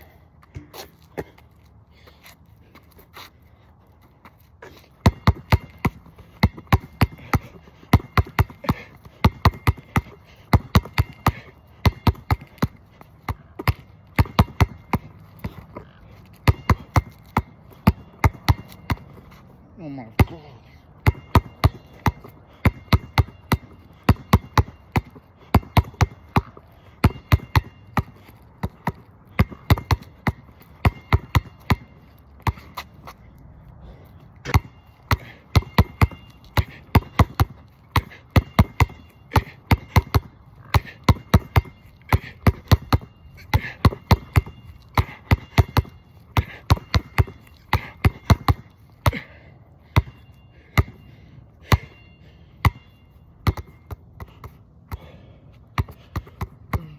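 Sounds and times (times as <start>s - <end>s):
basketball bouncing on court: 5.0s - 19.3s, 20.1s - 32.9s, 34.4s - 51.0s, 52.6s - 55.2s, 55.8s - 56.9s.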